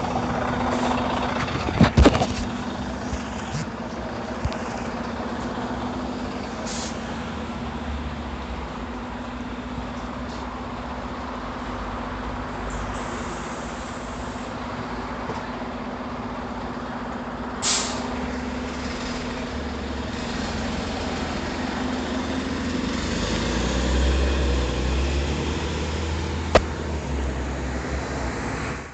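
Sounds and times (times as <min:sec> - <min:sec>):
bus engine rumble: 0:00.0 - 0:28.9
air brakes hissing: 0:06.6 - 0:07.2, 0:12.7 - 0:14.6, 0:17.6 - 0:18.2.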